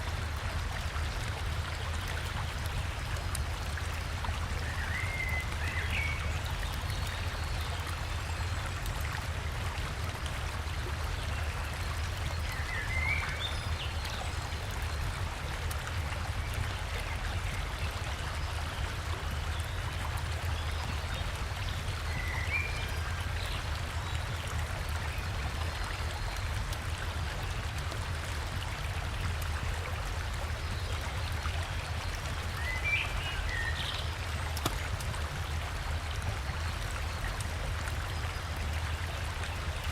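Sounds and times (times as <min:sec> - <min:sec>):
river water rushing: 0:26.4 - 0:39.9.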